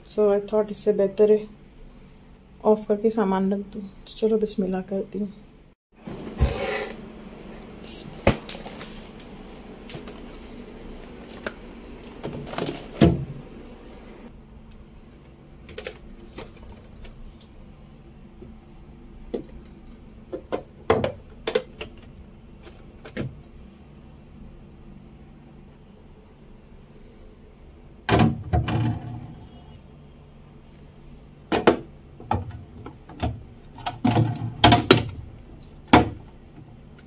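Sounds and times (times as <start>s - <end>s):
low steady hum: 0.0s - 37.0s
items knocking in refrigerator: 12.2s - 13.4s, 28.1s - 29.2s, 33.2s - 35.2s.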